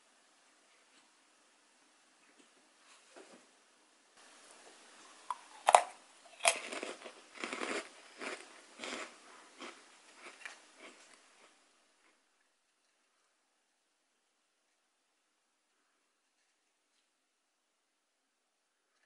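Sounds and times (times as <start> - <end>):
meringue cookie crunching: 5.0 - 13.4
chewing soft crunches: 5.3 - 13.4.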